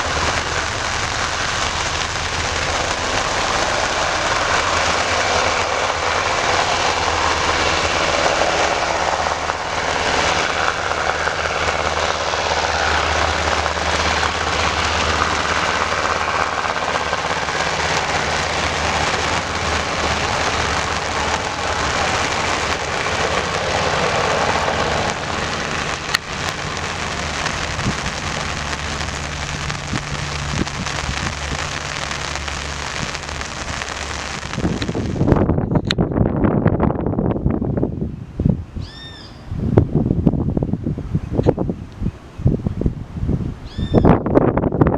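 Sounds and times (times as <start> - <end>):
loud hiss: 0.0 - 35.4
helicopter engine and rotor hum: 2.0 - 28.9.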